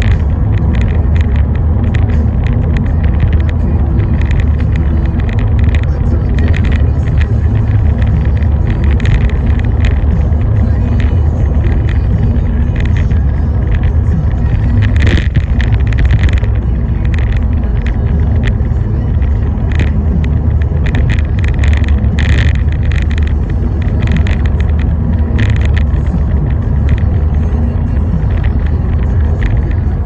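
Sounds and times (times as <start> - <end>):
car driving on rainy road: 0.0 - 30.0.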